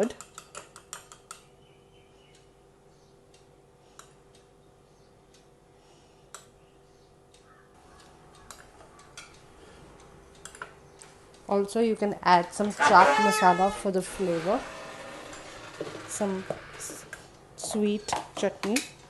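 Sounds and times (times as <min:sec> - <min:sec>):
low hum: 0:09.5 - 0:17.7.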